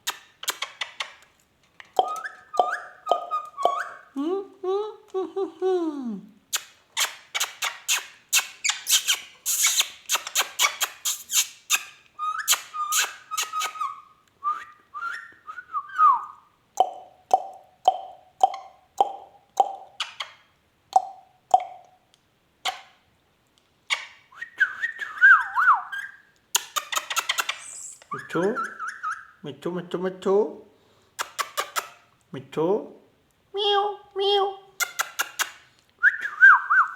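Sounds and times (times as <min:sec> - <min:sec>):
parakeet calling: 0:02.0 - 0:04.2, 0:07.0 - 0:14.1, 0:25.4 - 0:29.4.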